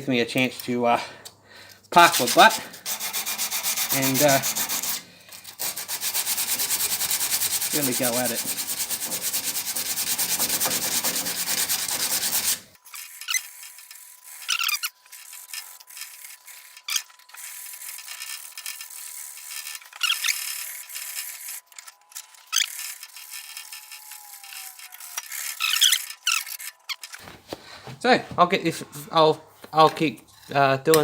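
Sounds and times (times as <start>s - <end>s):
sandpaper rubbing on steel: 2.0s - 21.8s.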